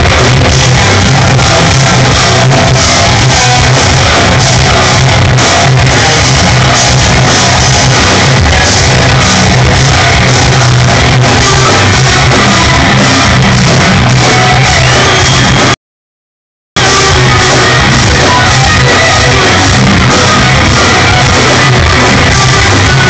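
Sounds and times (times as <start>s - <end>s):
progressive metal band playing: 0.0s - 15.8s, 16.8s - 23.0s.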